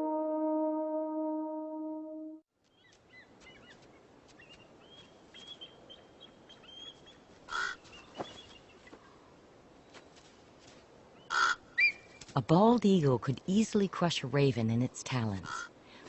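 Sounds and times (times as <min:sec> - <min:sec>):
music: 0:00.0 - 0:02.4
harsh raven call: 0:07.5 - 0:07.8, 0:11.3 - 0:11.6.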